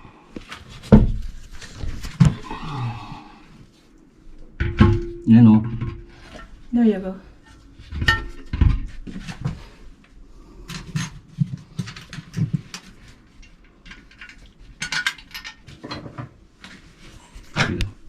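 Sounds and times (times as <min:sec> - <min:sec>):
clinks of toilet parts and tools: 0:04.6 - 0:06.5, 0:07.4 - 0:08.9, 0:10.6 - 0:16.4.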